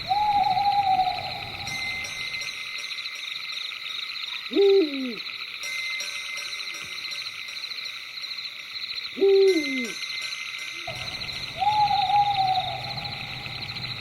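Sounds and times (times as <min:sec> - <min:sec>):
owl hooting: 0:00.0 - 0:02.1, 0:04.5 - 0:05.3, 0:09.2 - 0:10.0, 0:10.9 - 0:14.0
low background hum: 0:00.0 - 0:02.6, 0:10.9 - 0:14.0.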